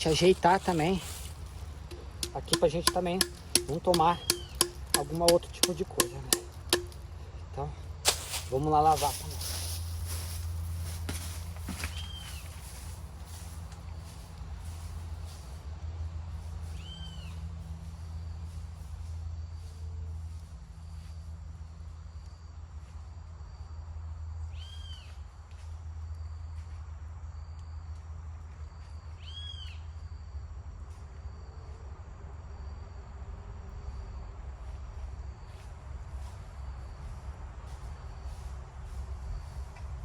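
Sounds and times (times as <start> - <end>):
insects trilling: 0.0 - 15.4.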